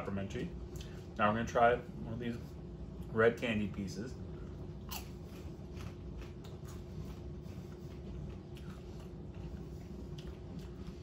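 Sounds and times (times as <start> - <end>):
steady low hum: 0.0 - 11.0
popcorn crunching while chewed: 4.8 - 11.0.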